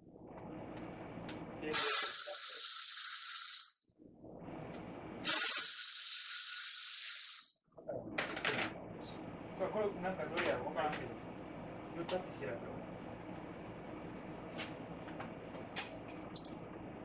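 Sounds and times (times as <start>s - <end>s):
pressurised spray hissing: 1.7s - 3.8s, 5.2s - 7.6s.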